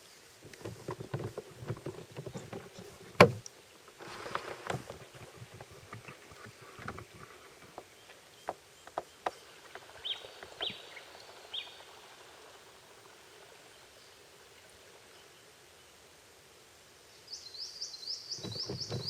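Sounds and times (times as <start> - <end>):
faint outdoor background: 0.0 - 19.0
bird chirping: 7.8 - 11.9, 17.2 - 19.0.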